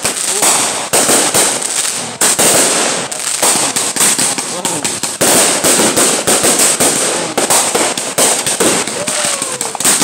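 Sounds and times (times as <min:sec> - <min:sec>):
fireworks shots and crackling: 0:00.0 - 0:10.0
falling firework whistle: 0:08.6 - 0:10.0.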